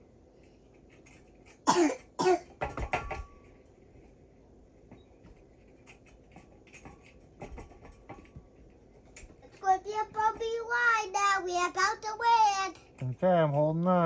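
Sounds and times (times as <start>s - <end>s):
person coughing: 1.6s - 2.5s
knocks and thumps: 2.5s - 3.5s.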